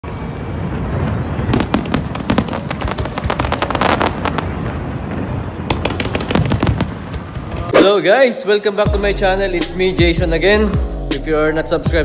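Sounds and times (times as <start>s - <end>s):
firework crackling pops: 1.5s - 4.5s.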